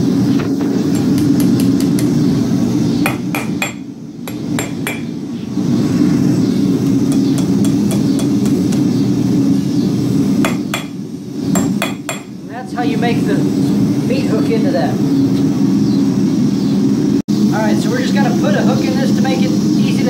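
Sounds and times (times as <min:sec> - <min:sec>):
hammer striking steel on anvil: 0:00.9 - 0:02.1, 0:03.1 - 0:05.2, 0:07.1 - 0:08.8, 0:10.4 - 0:11.0, 0:11.6 - 0:12.4.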